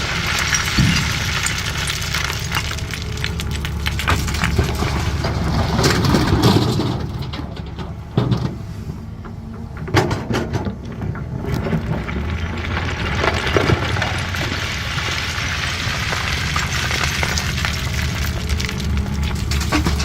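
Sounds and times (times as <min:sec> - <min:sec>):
excavator diesel engine: 0:00.0 - 0:20.0
stones clattering against bucket: 0:19.3 - 0:20.0.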